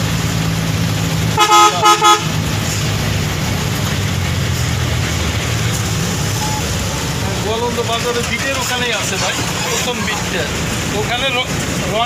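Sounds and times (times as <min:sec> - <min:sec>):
engine and road hum: 0:00.0 - 0:12.0
vehicle horn tooting: 0:01.4 - 0:02.4.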